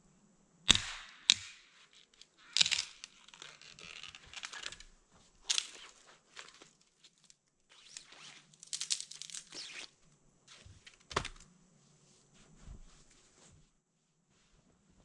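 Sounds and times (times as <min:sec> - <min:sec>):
twigs snapping: 0:00.7 - 0:09.6
crackling and rustling: 0:01.7 - 0:15.0.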